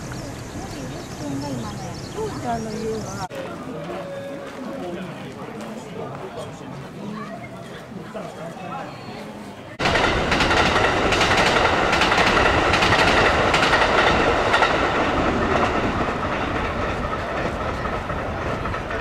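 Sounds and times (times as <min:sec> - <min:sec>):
electric train passing: 0:09.8 - 0:19.0.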